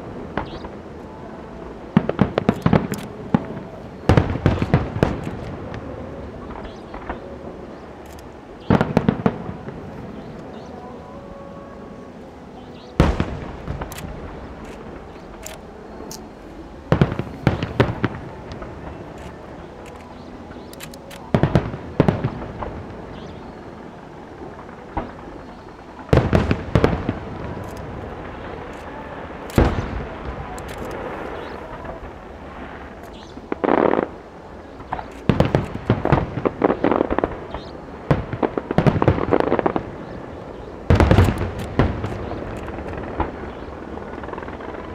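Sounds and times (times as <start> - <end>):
fireworks bursting: 0.0 - 10.8, 12.6 - 44.9
steady background haze: 0.0 - 44.9.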